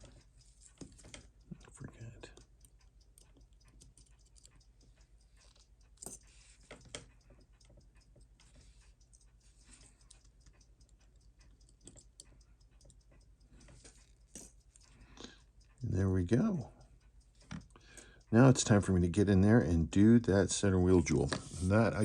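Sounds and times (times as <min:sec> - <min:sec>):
metal tools clicking on watch parts: 0:00.0 - 0:20.4.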